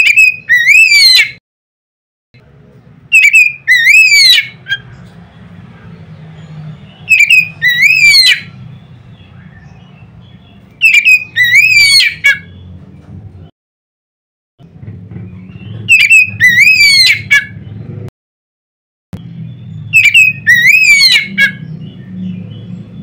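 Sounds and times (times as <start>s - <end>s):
bird singing whistled phrase: 3.1s - 4.6s, 7.1s - 8.4s, 10.8s - 12.3s, 19.9s - 21.4s.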